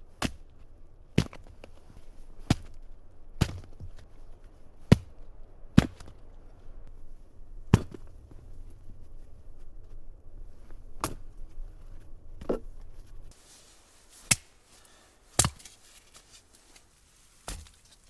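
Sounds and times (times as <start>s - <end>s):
axe chopping wood: 0.2s - 0.4s, 2.4s - 2.8s, 3.4s - 3.8s, 14.2s - 14.6s, 15.4s - 15.8s, 17.5s - 17.8s.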